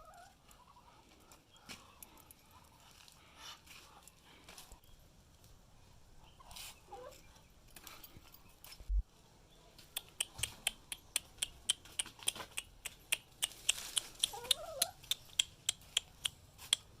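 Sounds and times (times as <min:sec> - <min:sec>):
ducklings peeping: 0:13.6 - 0:16.7.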